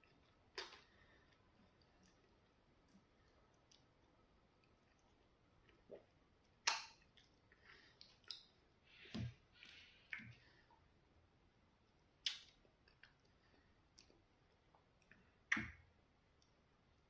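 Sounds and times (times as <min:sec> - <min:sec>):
wet lip smacks and tongue clicks: 0:00.0 - 0:08.6, 0:12.2 - 0:15.8.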